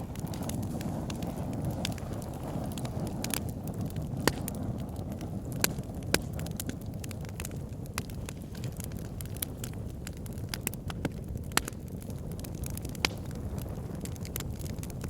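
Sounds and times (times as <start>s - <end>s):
wood fire burning: 0.0s - 15.0s.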